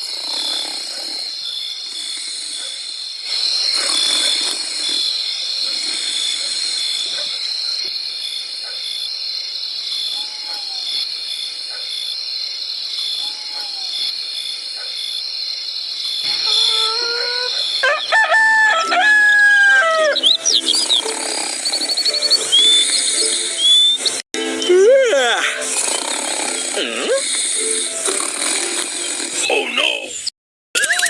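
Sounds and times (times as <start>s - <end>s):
crickets chirping: 0.0s - 18.9s, 20.1s - 24.2s.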